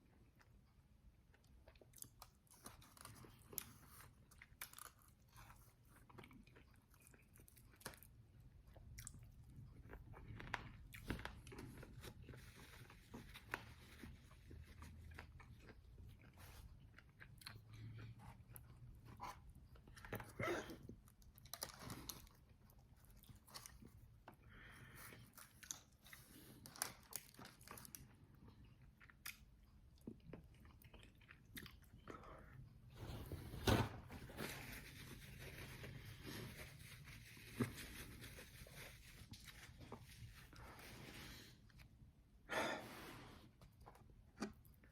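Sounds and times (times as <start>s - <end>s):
person chewing crunchy chicken: 1.4s - 32.7s.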